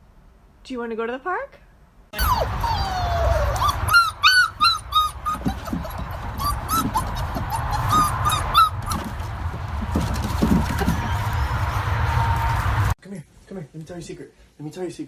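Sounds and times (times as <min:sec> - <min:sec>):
dog whining: 0:02.2 - 0:09.1.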